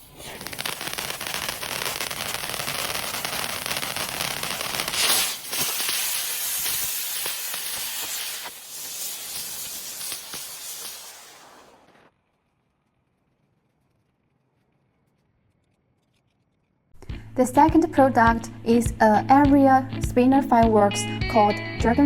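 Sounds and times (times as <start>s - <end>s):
ground spinner firework hissing: 0.0s - 12.1s
firework crackles: 0.0s - 14.2s.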